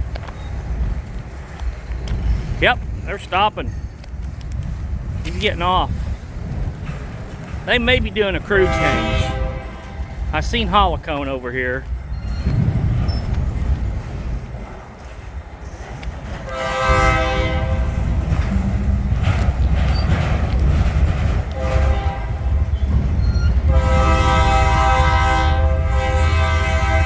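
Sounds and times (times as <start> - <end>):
train running rumble: 0.0 - 27.0
locomotive air horn blasts: 8.4 - 10.2, 16.5 - 18.0, 21.5 - 22.5, 23.7 - 27.0.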